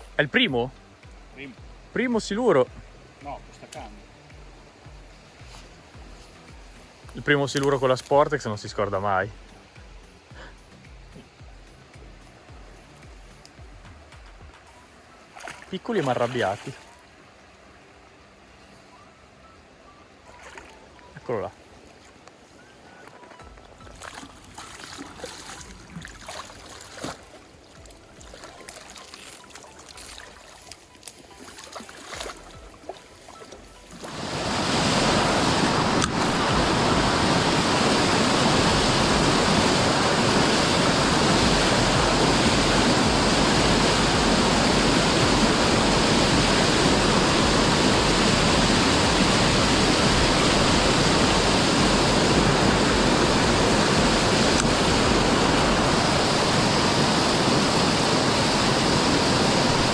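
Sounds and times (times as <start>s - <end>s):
waterfall rushing: 34.0s - 59.9s.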